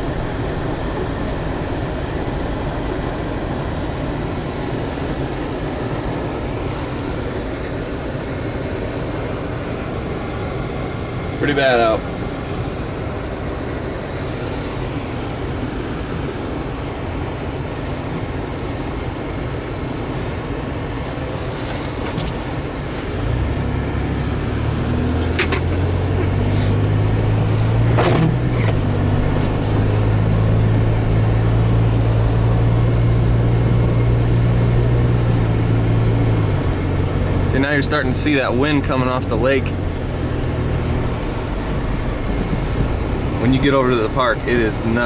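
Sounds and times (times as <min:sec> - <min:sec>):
low engine drone: 0:00.0 - 0:11.4, 0:22.9 - 0:45.0
engine and tyre rumble: 0:00.0 - 0:45.0.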